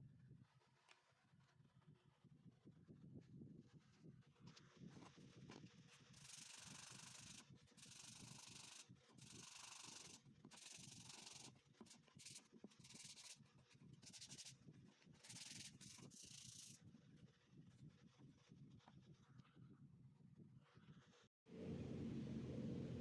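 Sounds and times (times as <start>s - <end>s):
sandpaper rubbing on wood: 6.2s - 13.4s, 14.0s - 14.6s, 15.2s - 16.8s.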